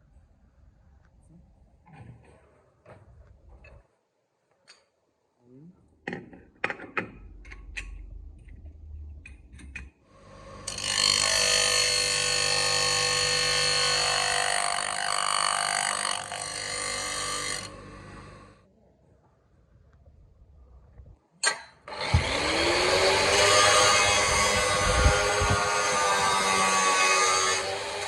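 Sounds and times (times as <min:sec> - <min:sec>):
power tool running: 0:10.2 - 0:18.6, 0:21.9 - 0:28.0.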